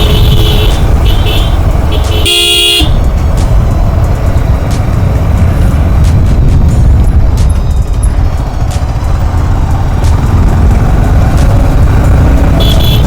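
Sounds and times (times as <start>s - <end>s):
vehicle horn beeping: 0.0s - 3.1s, 12.4s - 13.0s
wind and engine rumble: 0.0s - 13.0s.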